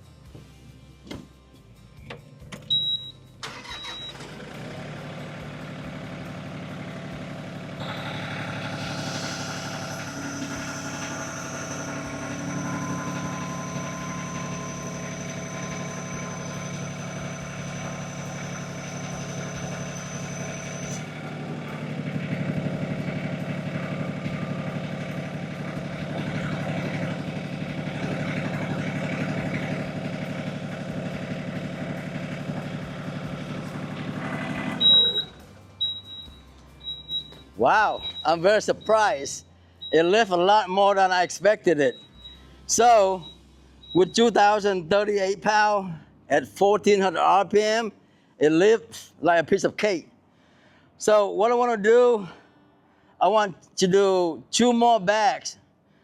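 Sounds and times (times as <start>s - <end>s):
tractor diesel engine running: 2.0s - 48.8s
short high beeps: 2.7s - 4.2s, 7.8s - 21.0s, 34.8s - 40.2s, 41.8s - 44.2s
high whine: 7.7s - 40.3s, 41.8s - 44.8s.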